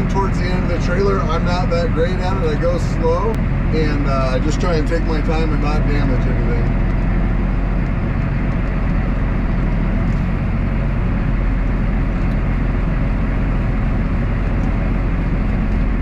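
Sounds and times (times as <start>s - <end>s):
tractor engine under load: 0.0s - 16.0s.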